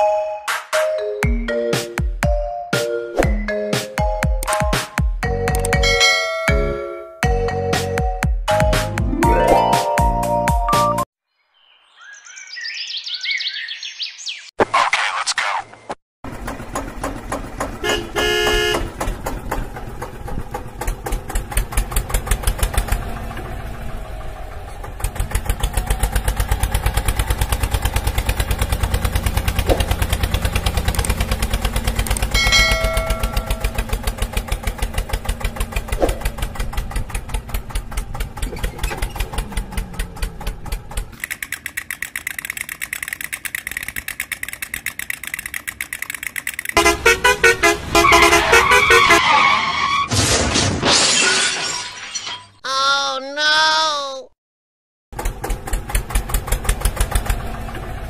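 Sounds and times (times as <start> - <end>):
tractor engine chugging: 16.3 - 48.5, 55.2 - 58.0
horn toots: 17.8 - 18.9, 46.8 - 49.8
light rhythmic rattle: 31.7 - 46.8.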